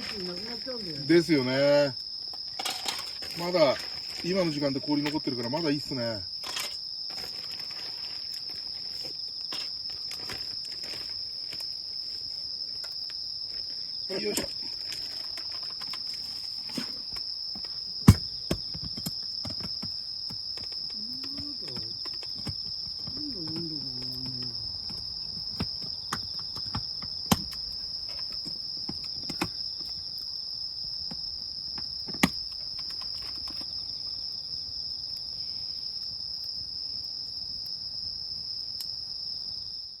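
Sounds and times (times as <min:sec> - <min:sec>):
campfire crackling and popping: 0:00.0 - 0:30.4
insects chirping: 0:00.0 - 0:40.0.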